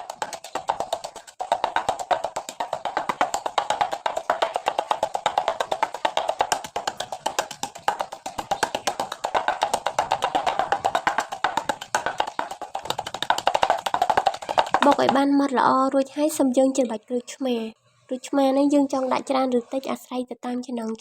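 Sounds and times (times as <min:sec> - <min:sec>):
pestle pounding in a mortar: 0:00.0 - 0:15.3.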